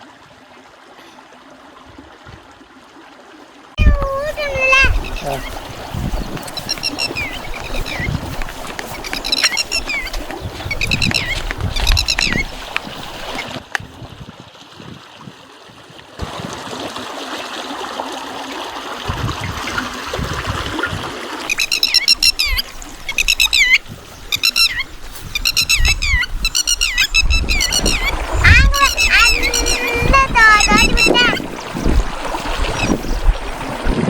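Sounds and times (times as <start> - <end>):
birds chirping: 3.8 - 13.5, 21.5 - 33.3.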